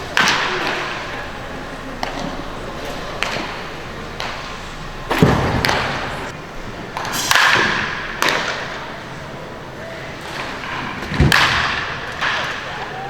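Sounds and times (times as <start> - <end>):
baseball knocks echoing in a hall: 0.0 - 13.0.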